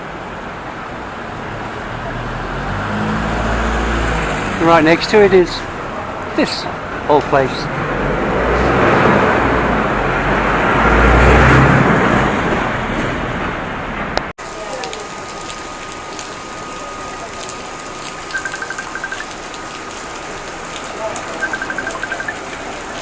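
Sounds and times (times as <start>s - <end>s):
street ambience: 0.0s - 23.0s
vehicle passing with engine rumble: 0.9s - 5.0s, 5.6s - 14.2s
rapid high beeps: 18.3s - 19.2s, 21.3s - 22.4s
steady thin tone: 18.3s - 19.2s, 21.4s - 22.4s.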